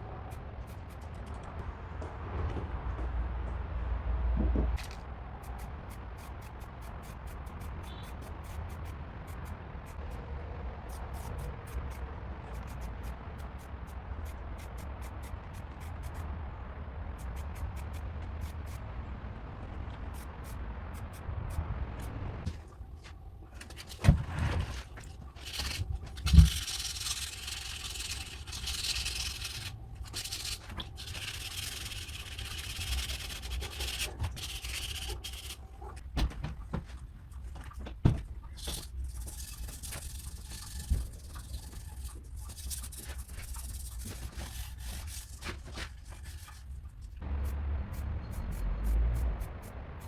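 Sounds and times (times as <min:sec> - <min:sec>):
hand scraping a hard surface: 0:23.6 - 0:35.7, 0:38.5 - 0:47.0.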